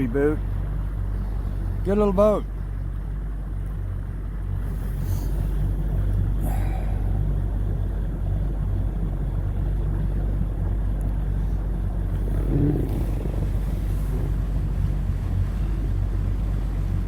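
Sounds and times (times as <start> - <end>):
outboard motor idling: 0.0 - 17.0.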